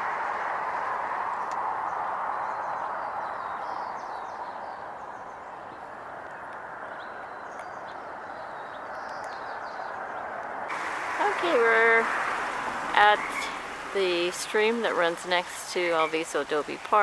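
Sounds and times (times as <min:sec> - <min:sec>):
bird chirps: 0:10.7 - 0:17.0
outdoor rushing noise: 0:10.7 - 0:17.0.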